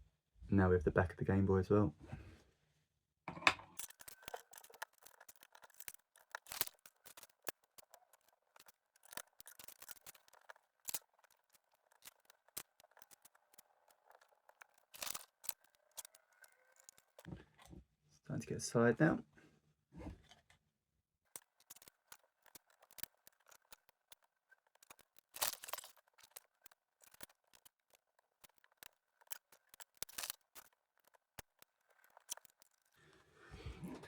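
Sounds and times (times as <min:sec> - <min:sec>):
light rummaging: 0:03.3 - 0:17.7, 0:21.3 - 0:33.2
plastic pieces clicking together: 0:03.7 - 0:17.3, 0:21.3 - 0:33.0.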